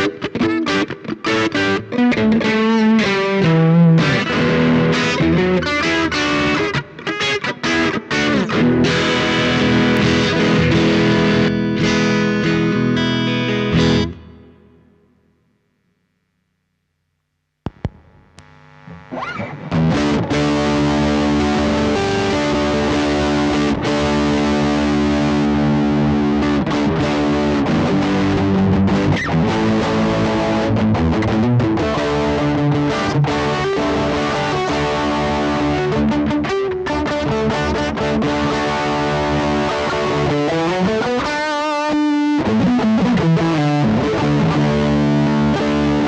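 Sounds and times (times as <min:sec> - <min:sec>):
overdriven electric guitar: 0:00.0 - 0:16.3, 0:17.2 - 0:46.0.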